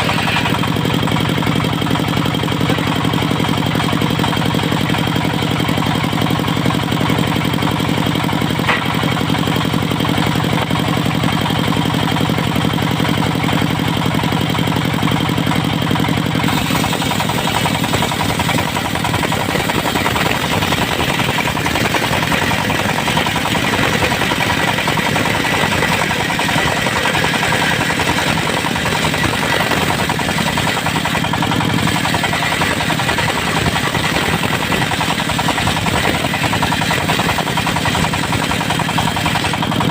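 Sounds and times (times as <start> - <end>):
saw blade cutting log: 0.0 - 13.8, 15.5 - 39.9
portable sawmill running: 0.0 - 39.9.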